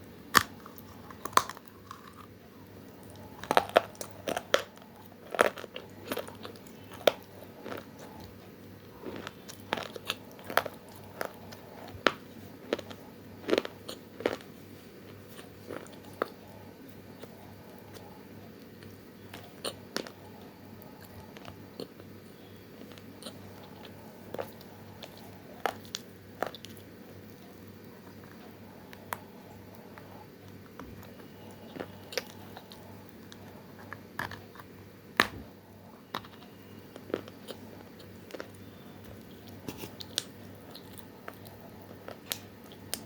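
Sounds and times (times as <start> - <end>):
steady low hum: 0.0 - 43.0
crunching clay chunks: 0.3 - 2.4.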